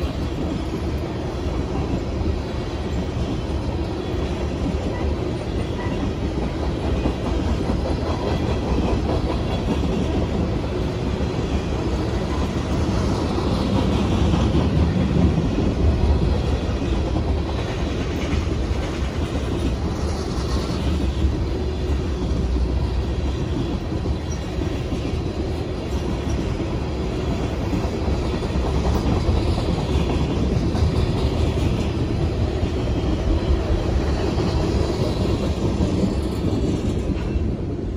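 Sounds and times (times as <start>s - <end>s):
train wheels rumbling on rails: 0.0s - 37.9s.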